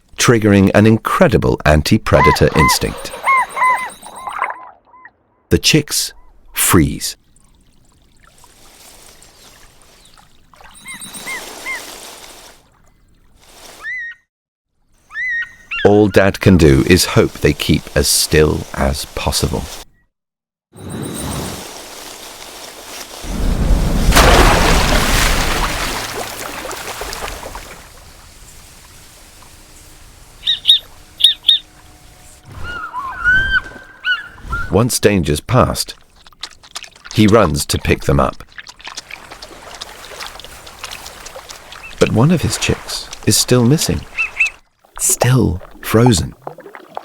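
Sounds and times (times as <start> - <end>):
bird calling short arched notes: 2.1 - 5.1, 10.6 - 12.6, 30.3 - 34.8.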